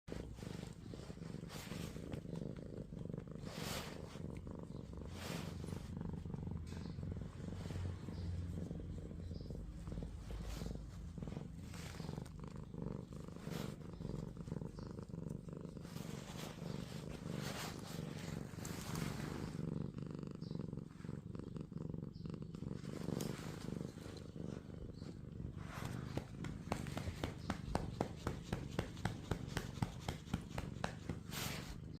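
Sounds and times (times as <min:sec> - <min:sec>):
cat purring: 0:00.0 - 0:32.0
hand patting cat: 0:25.7 - 0:31.8.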